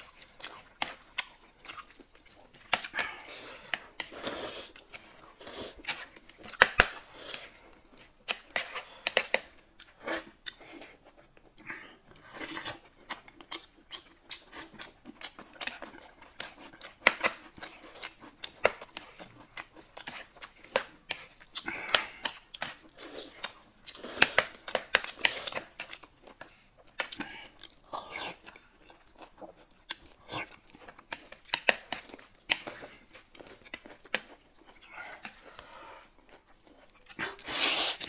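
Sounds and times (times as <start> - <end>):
noodles being slurped: 0.0 - 6.3, 34.6 - 38.0
wet chewing and lip-smacking: 0.0 - 38.0.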